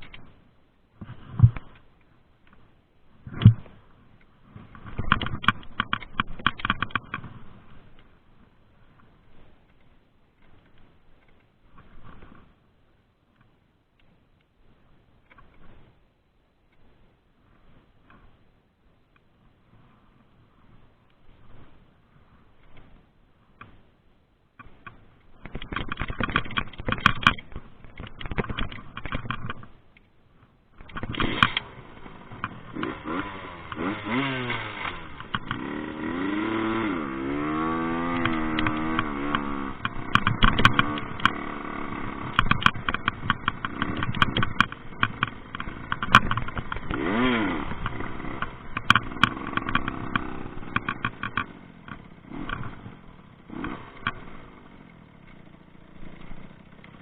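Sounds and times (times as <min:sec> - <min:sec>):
sharp knocks and rattles: 0:04.6 - 0:07.6, 0:24.6 - 0:29.8, 0:30.8 - 0:54.6
dirt bike engine revving: 0:30.8 - 0:57.0.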